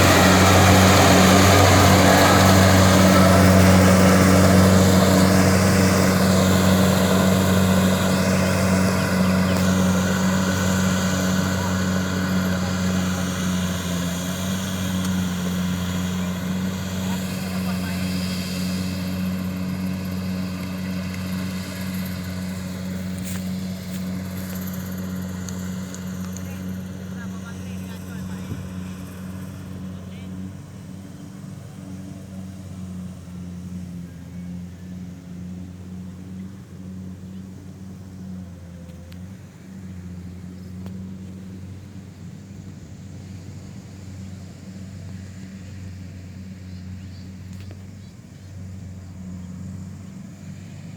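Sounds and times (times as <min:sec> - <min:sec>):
combine harvester engine hum: 0:00.0 - 0:50.9.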